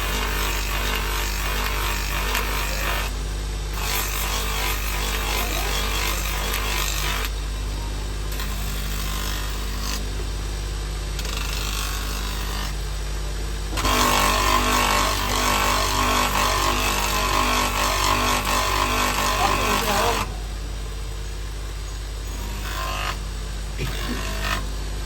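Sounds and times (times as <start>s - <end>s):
power tool motor hum: 0.0s - 7.4s, 11.2s - 12.8s, 13.7s - 20.4s, 22.2s - 24.8s
rough machine noise: 0.0s - 10.4s, 11.2s - 13.0s, 13.7s - 21.1s, 22.2s - 25.0s.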